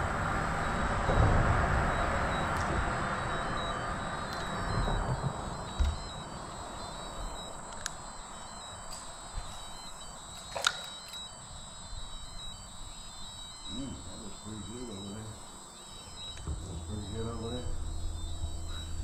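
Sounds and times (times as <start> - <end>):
insects buzzing: 0.0 - 19.0
sharp click: 10.3 - 11.3.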